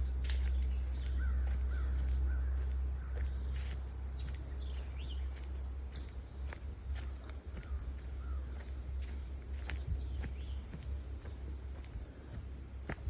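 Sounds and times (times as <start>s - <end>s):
high insect drone: 0.0s - 13.0s
faint bird calls: 0.6s - 3.5s, 7.0s - 8.8s.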